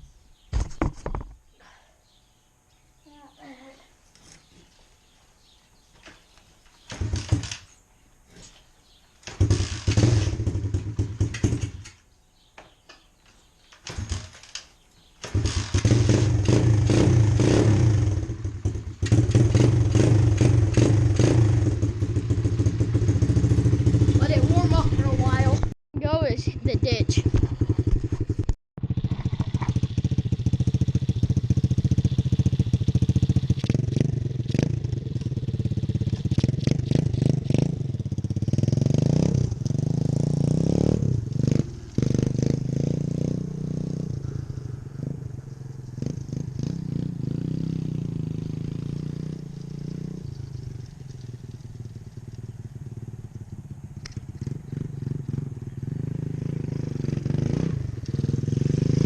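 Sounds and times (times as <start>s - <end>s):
dirt bike engine revving: 9.3s - 11.8s, 15.2s - 59.0s.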